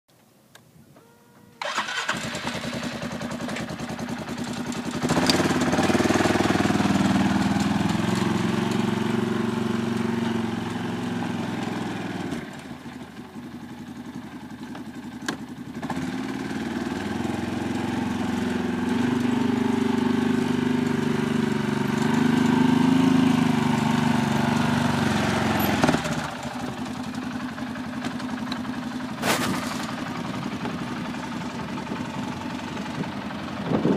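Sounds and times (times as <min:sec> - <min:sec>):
engine starting and revving: 0:01.6 - 0:12.7, 0:15.8 - 0:27.2, 0:29.1 - 0:30.7.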